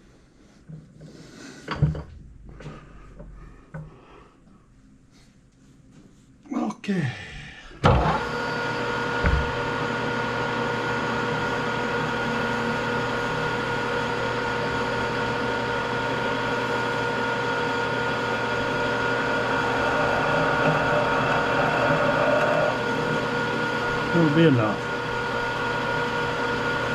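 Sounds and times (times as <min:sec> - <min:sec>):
metal lathe whining: 0:07.9 - 0:26.9
drill cutting into iron bar: 0:08.0 - 0:26.9.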